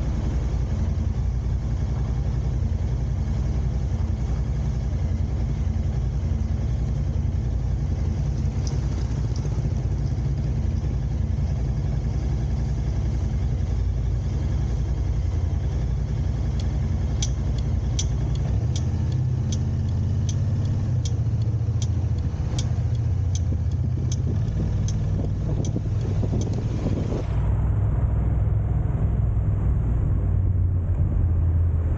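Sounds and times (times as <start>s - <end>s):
car engine and road noise: 0.0s - 31.9s
turn signal ticking: 7.8s - 11.7s, 16.4s - 26.8s.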